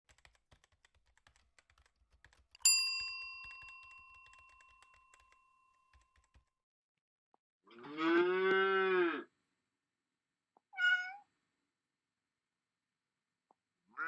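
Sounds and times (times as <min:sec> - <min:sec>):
bell ding: 0:02.6 - 0:05.3.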